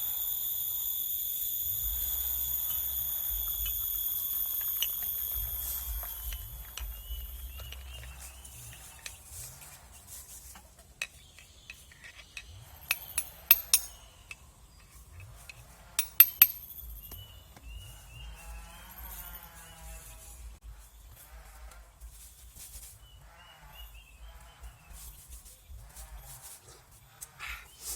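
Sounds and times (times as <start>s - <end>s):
spoon clinking against cup: 12.9s - 14.0s, 16.0s - 17.2s.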